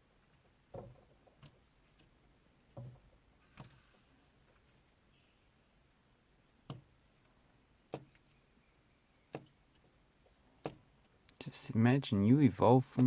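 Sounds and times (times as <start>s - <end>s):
bird pecking taps on car: 6.6s - 6.9s.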